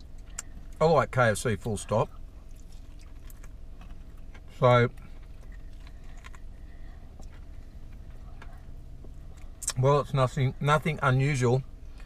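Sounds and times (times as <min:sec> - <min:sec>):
crunching fried chicken: 0:02.2 - 0:08.2.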